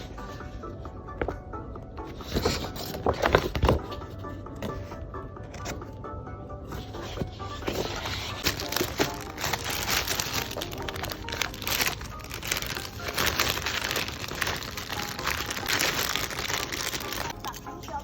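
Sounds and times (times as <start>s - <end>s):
packing material crinkling: 7.6s - 18.0s.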